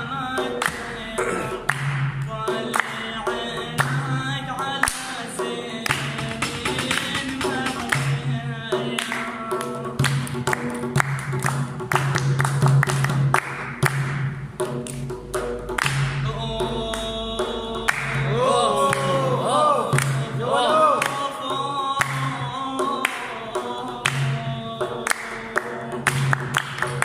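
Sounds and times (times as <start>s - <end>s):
man singing: 0.0s - 10.5s, 16.2s - 26.5s
rhythmic percussion: 0.0s - 27.0s.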